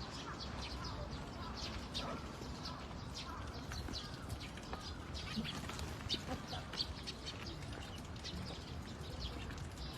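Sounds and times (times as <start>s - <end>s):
birds chirping: 0.0s - 9.9s.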